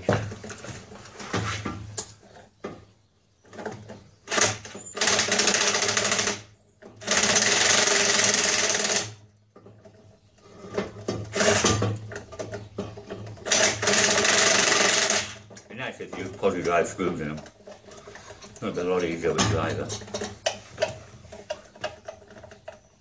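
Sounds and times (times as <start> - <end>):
handling noises: 9.5 - 23.0.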